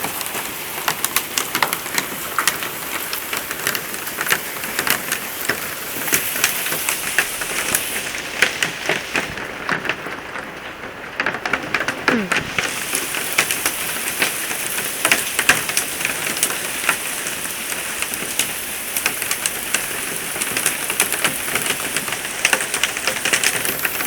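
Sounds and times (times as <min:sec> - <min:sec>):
heavy rain hissing: 0:00.0 - 0:10.5, 0:11.6 - 0:24.0.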